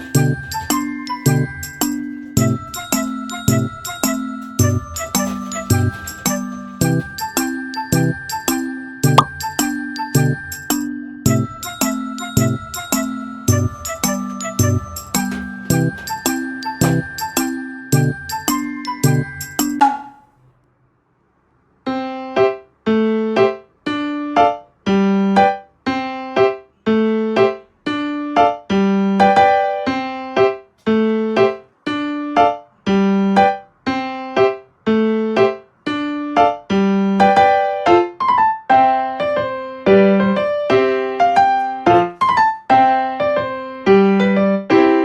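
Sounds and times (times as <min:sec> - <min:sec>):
piano music: 0:00.0 - 0:19.9.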